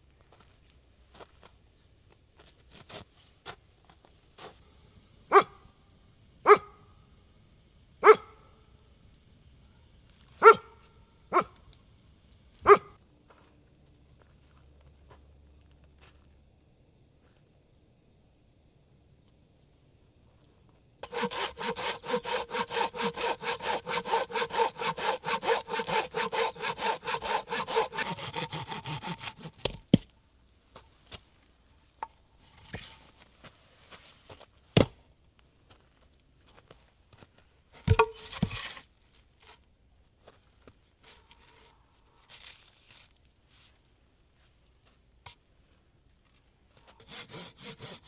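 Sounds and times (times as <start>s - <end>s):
hand saw cutting wood: 21.0s - 29.9s, 37.9s - 38.8s, 47.0s - 48.0s
wood knocking and handling: 37.8s - 38.8s.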